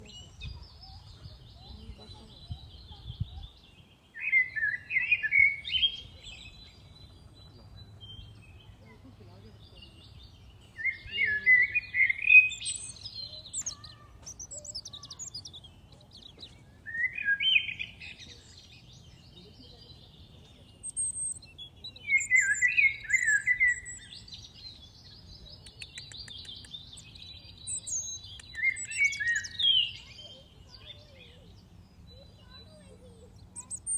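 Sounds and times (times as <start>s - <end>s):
high bird chirps: 9.8s - 33.9s
songbird warbling: 20.7s - 24.3s, 25.5s - 33.9s.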